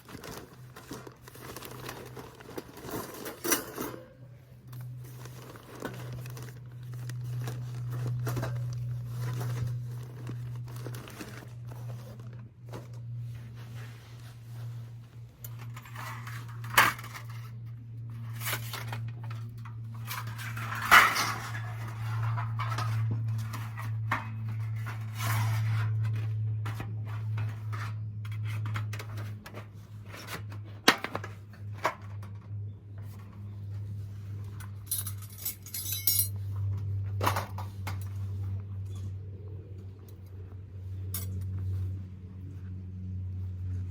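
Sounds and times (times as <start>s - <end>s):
camping utensils clinking: 0.0s - 13.1s, 34.4s - 38.2s, 41.0s - 41.6s
steady low hum: 0.0s - 43.9s.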